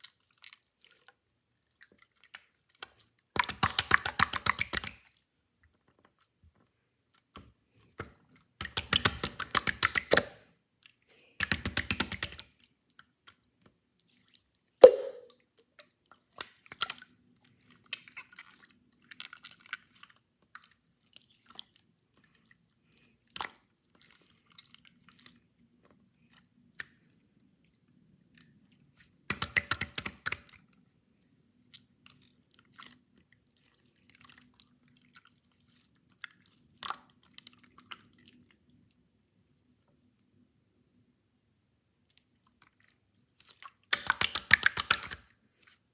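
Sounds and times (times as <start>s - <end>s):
slime clicking and popping: 3.4s - 5.0s, 8.6s - 10.3s, 11.4s - 12.4s, 14.8s - 15.3s, 29.3s - 30.4s, 43.9s - 45.2s.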